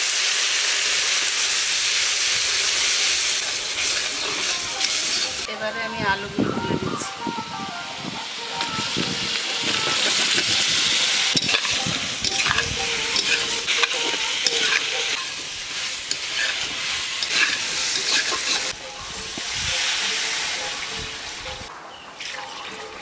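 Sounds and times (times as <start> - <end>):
potatoes sizzling in a pan: 0.0 - 5.5, 8.3 - 21.3
spatula scraping and knocking pan: 11.3 - 18.8.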